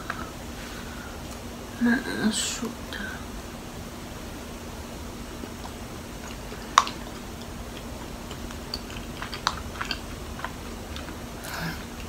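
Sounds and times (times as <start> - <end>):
faint steady hum: 0.0 - 12.0
chewing sticky food: 4.4 - 12.0.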